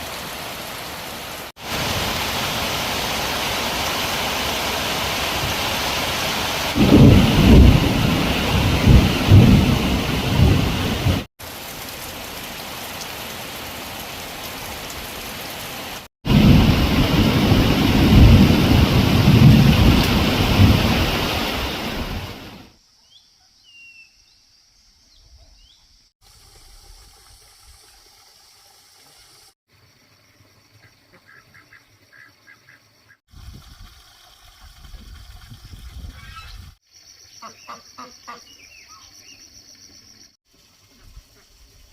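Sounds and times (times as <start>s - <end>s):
heavy rain: 0.0s - 22.7s
deep rolling thunder: 6.7s - 11.3s, 16.3s - 22.6s.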